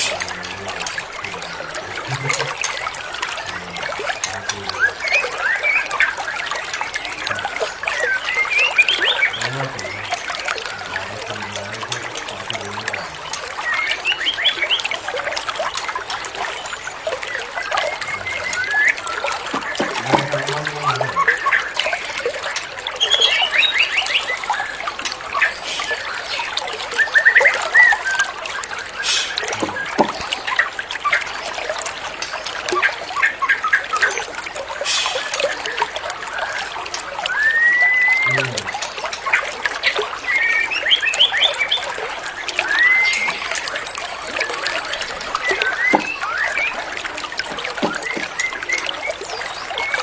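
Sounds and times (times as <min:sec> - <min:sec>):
trickling water: 0:00.0 - 0:50.0
bird singing whistles and trills: 0:04.2 - 0:06.5, 0:07.3 - 0:10.1, 0:17.3 - 0:22.0, 0:23.0 - 0:24.8, 0:37.3 - 0:38.6, 0:40.3 - 0:46.9.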